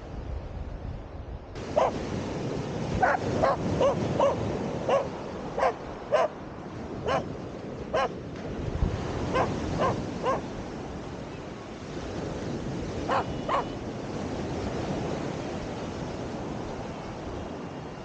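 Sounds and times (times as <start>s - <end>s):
wind: 0.0s - 18.0s
surf: 1.6s - 18.0s
dog barking: 1.7s - 2.0s, 3.0s - 6.4s, 7.0s - 7.3s, 7.9s - 8.1s, 9.3s - 10.5s, 13.0s - 13.8s.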